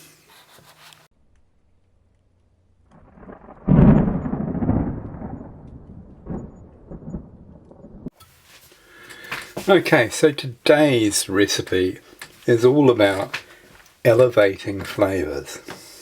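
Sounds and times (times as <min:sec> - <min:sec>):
thunder clap and rumble: 0:02.9 - 0:08.2.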